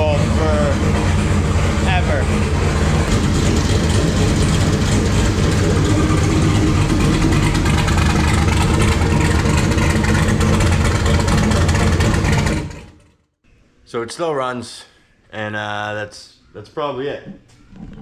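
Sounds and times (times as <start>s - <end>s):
race car engine running: 0.0s - 13.3s.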